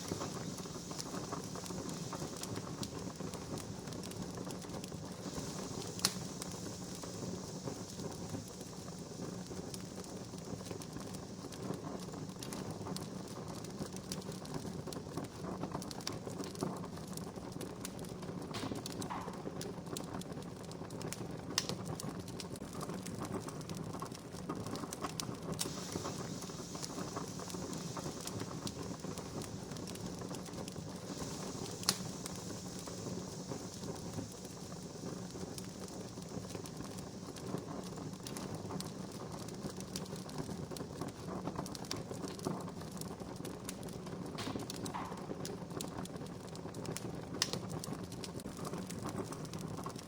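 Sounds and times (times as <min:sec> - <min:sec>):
sharp fire pops: 0:00.0 - 0:50.0
wood fire crackling: 0:00.0 - 0:50.0.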